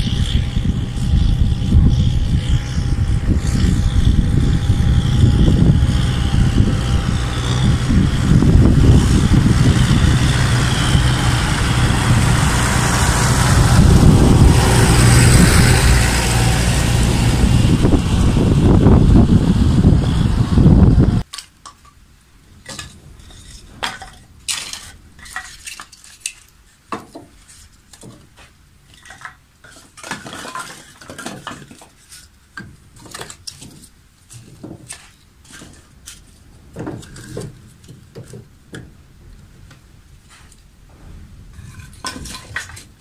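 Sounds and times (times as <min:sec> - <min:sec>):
loud low rumble: 0:00.0 - 0:21.2, 0:40.9 - 0:42.0.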